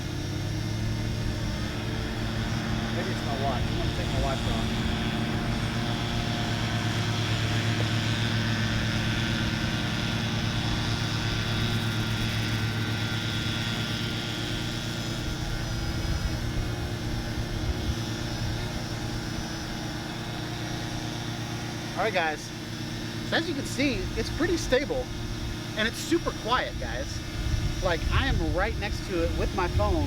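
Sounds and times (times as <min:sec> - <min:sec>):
drone propeller hum: 0:00.0 - 0:30.0
high motor whine: 0:00.0 - 0:30.0
strong low hum: 0:00.0 - 0:30.0.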